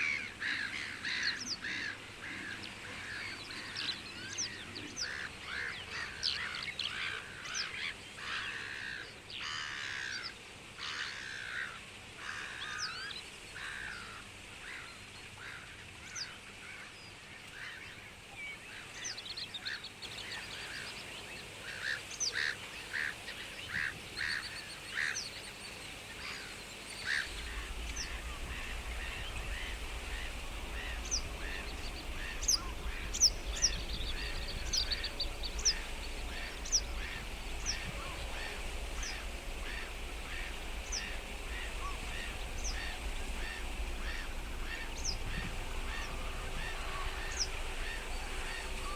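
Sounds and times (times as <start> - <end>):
many birds calling: 0.0 - 16.3, 18.6 - 48.9
low rumble: 27.2 - 48.9.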